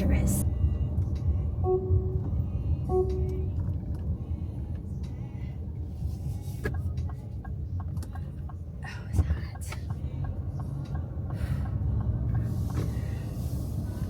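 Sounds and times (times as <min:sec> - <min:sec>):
car cabin road noise: 0:00.0 - 0:14.0
car horn toot: 0:01.6 - 0:03.6.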